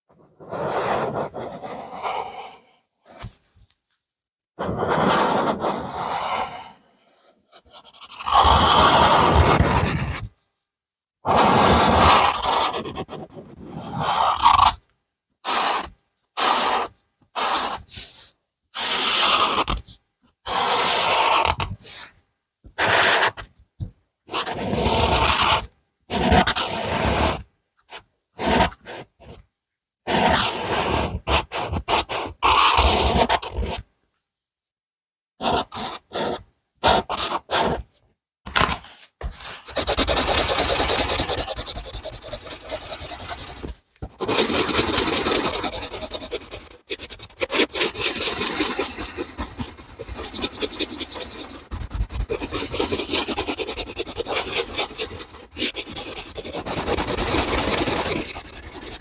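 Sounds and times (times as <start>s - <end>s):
drawing tool scribbling on paper: 39.4s - 59.0s.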